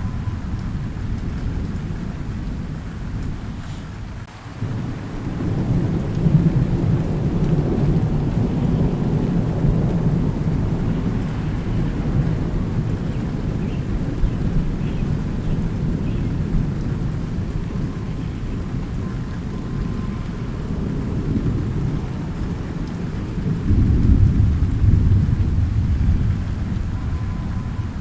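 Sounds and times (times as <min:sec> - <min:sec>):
steady rain: 0:00.0 - 0:28.0
thunder rumbling: 0:00.0 - 0:28.0.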